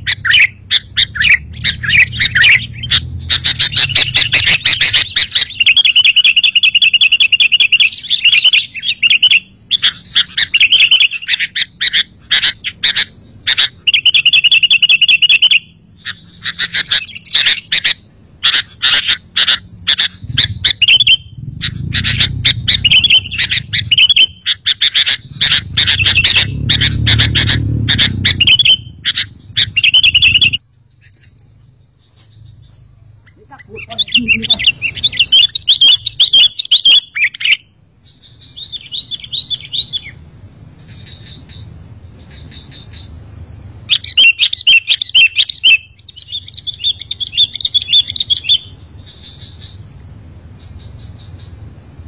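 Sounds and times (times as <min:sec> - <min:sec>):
birds chirping and trilling: 0:00.0 - 0:52.0
low rumble: 0:20.1 - 0:35.3.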